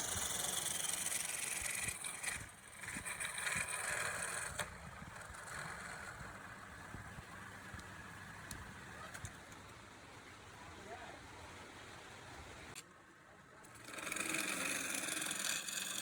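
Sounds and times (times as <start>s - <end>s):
tool shaving spinning wood: 0.0s - 6.4s, 13.7s - 16.0s
wood lathe running: 13.8s - 16.0s.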